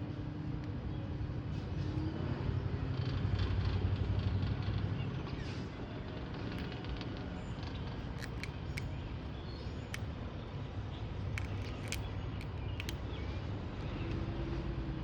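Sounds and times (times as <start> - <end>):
squirrel cracking nut shell: 8.1 - 8.9, 11.3 - 13.1.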